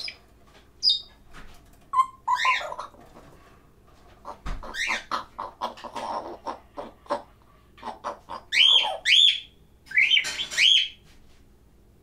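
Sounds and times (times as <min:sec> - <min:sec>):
parrot whistle: 0:01.9 - 0:02.8, 0:08.5 - 0:11.0
parrot chirps and squawks: 0:01.9 - 0:03.0, 0:04.2 - 0:11.0.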